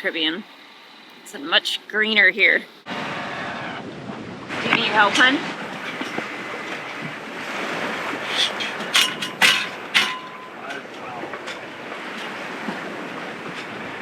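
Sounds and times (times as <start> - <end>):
water and wind rushing: 0.0 - 14.0
sharp ringing knocks: 8.3 - 10.8.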